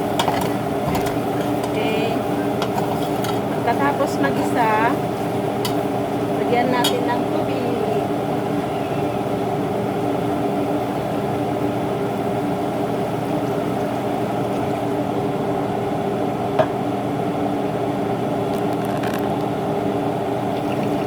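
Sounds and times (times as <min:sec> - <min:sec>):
steady mechanical hum: 0:00.0 - 0:21.0
liquid bubbling in pot: 0:08.1 - 0:16.9.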